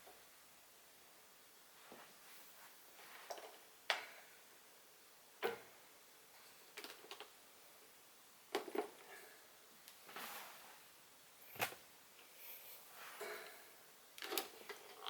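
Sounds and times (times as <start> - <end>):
faint steady background noise: 0.0 - 15.0
soft rustling: 1.7 - 3.6, 9.0 - 13.7.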